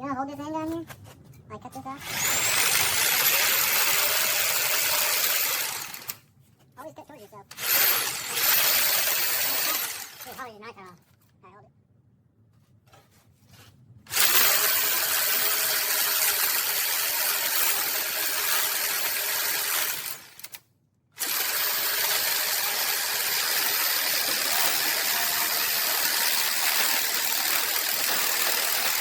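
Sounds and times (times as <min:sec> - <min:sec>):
power tool whining: 0:02.0 - 0:06.2, 0:07.5 - 0:10.2, 0:14.1 - 0:20.6, 0:21.2 - 0:29.0.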